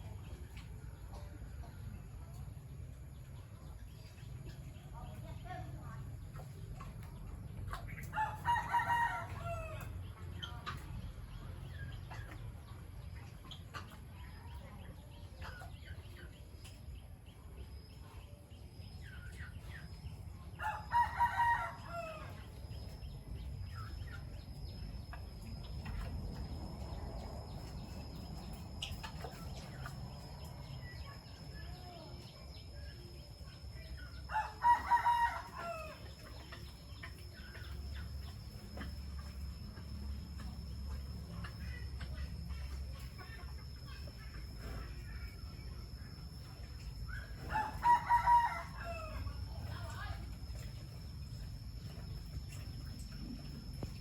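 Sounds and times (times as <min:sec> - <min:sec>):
small birds chirping: 0:00.0 - 0:54.0
rooster crowing: 0:08.2 - 0:09.9, 0:20.6 - 0:22.4, 0:34.3 - 0:36.0, 0:47.5 - 0:49.4.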